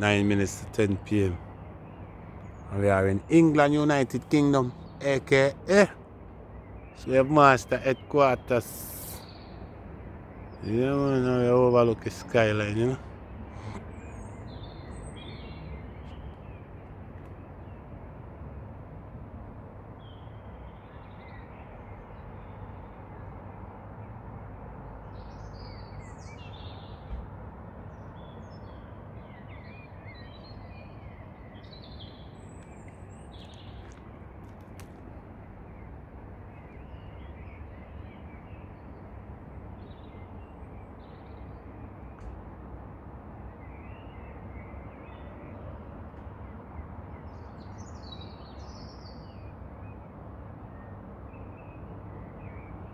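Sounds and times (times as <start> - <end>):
small birds chirping: 0.0 - 6.0, 6.6 - 17.8, 25.1 - 42.4.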